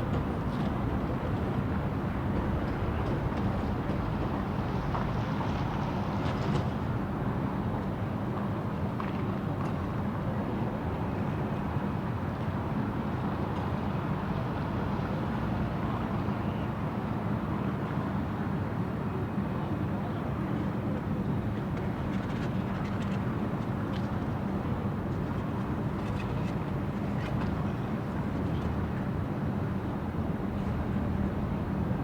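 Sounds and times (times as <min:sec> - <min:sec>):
low rumble of traffic: 0:19.1 - 0:32.0.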